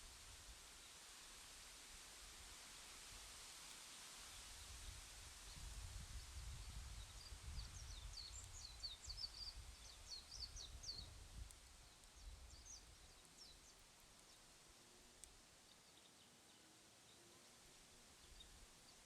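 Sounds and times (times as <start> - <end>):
faint bird chirping: 5.5 - 19.0.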